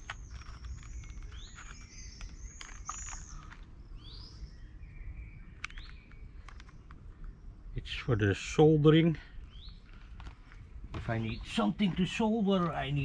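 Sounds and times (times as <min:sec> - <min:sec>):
light clicks: 0:05.5 - 0:07.4.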